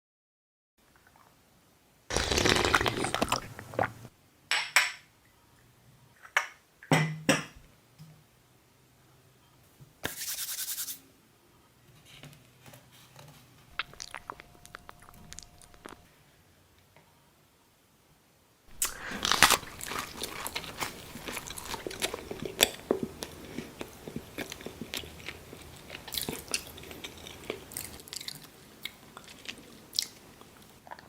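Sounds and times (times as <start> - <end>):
rubbing and scratching handling: 10.1 - 11.0.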